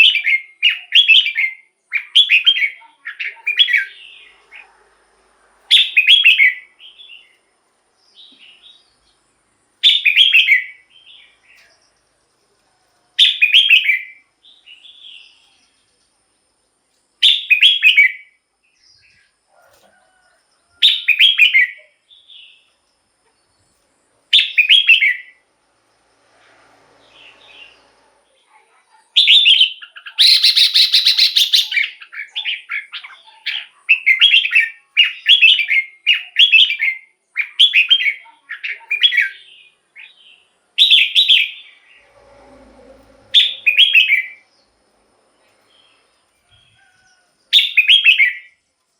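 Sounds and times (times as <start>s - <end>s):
bulbul singing: 29.2s - 44.8s, 45.4s - 48.6s.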